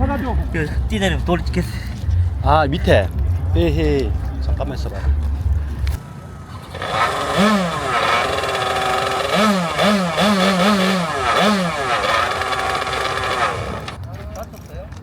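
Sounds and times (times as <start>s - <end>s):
engine revving in short blips: 5.7s - 14.0s.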